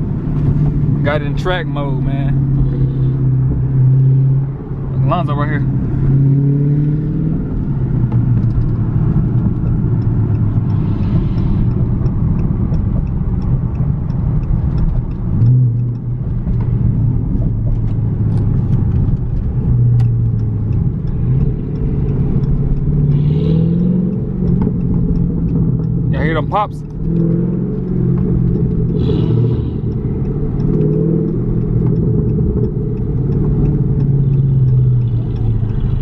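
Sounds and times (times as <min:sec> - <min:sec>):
engine revving blips: 0:00.0 - 0:16.8, 0:18.3 - 0:36.0
car exhaust at low revs: 0:00.0 - 0:36.0
sharp exhaust pops: 0:07.2 - 0:36.0.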